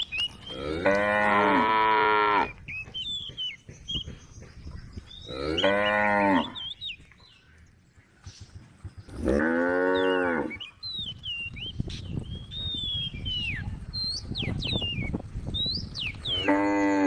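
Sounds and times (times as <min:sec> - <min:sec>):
small birds chirping: 0:00.0 - 0:17.0
cow mooing: 0:00.5 - 0:02.5, 0:05.3 - 0:06.6, 0:09.2 - 0:10.6, 0:16.4 - 0:17.0.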